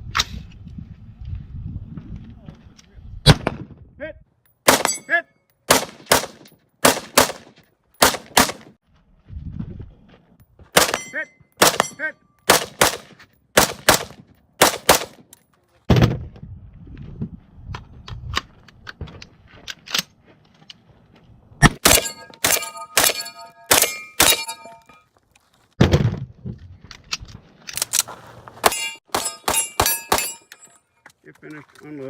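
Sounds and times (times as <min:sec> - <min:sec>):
gunfire: 0:04.7 - 0:05.1, 0:05.7 - 0:08.8, 0:10.8 - 0:15.2, 0:21.6 - 0:24.6
steel targets clanging: 0:21.7 - 0:25.1, 0:28.6 - 0:30.9.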